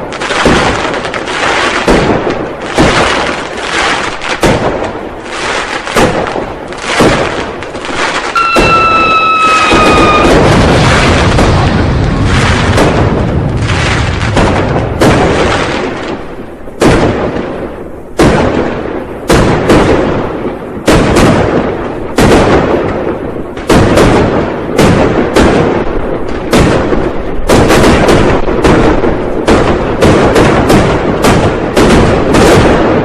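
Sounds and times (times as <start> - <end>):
firecracker bangs: 0.0 - 33.0
rumbling echo: 8.4 - 20.4.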